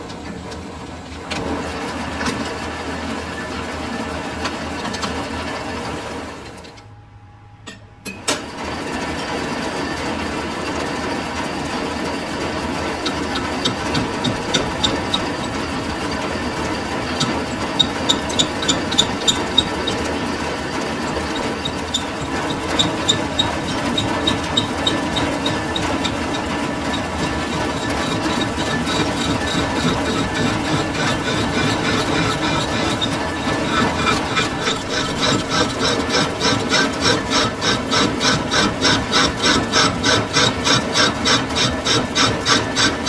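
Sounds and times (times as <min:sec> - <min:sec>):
metal lathe humming: 0:10.6 - 0:43.0.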